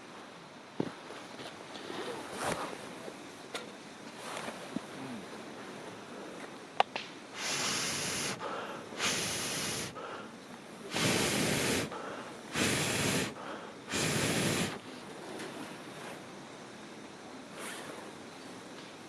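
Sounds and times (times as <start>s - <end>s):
burning wood crackle: 6.0s - 14.8s
air puffs blown into campfire: 6.9s - 16.3s, 17.5s - 18.2s.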